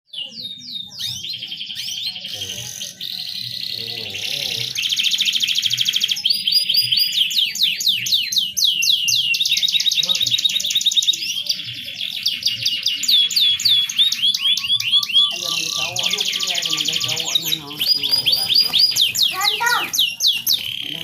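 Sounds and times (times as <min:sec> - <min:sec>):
canary singing: 0:00.1 - 0:21.0.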